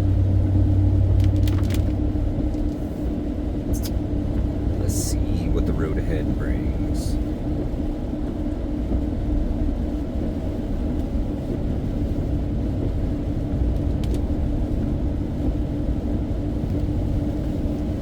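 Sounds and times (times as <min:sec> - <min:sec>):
faint steady hum: 0:00.0 - 0:10.8
car cabin rumble: 0:00.0 - 0:18.0.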